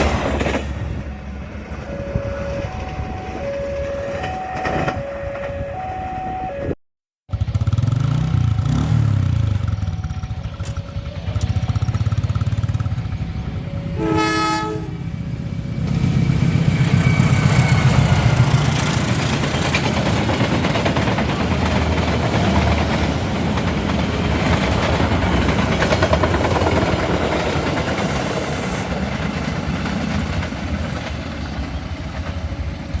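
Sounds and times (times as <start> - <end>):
train wheels clattering over rails: 0.0 - 1.0, 15.5 - 33.0
train horn blast: 13.7 - 15.2.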